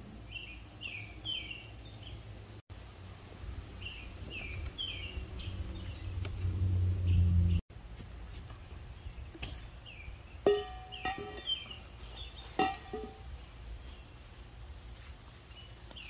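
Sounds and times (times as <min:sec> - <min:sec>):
songbird chirping: 0:00.0 - 0:02.6, 0:03.6 - 0:07.6, 0:08.8 - 0:16.0.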